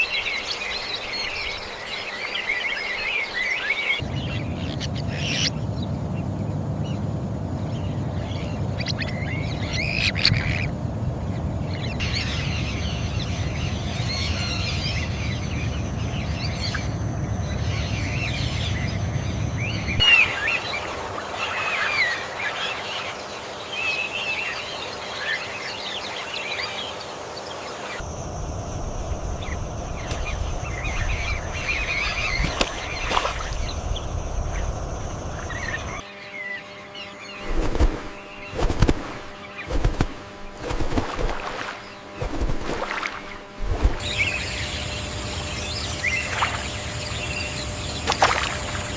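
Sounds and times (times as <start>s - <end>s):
bird calls and chirps: 0.0s - 6.0s, 7.6s - 10.7s, 11.3s - 28.4s, 29.1s - 48.9s
steady low rumble: 4.0s - 21.5s, 28.0s - 36.0s, 37.4s - 48.0s.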